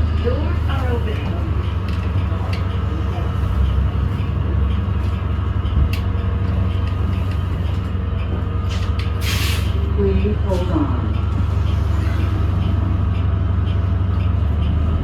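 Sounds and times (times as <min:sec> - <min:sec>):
bus interior drone: 0:00.0 - 0:15.0.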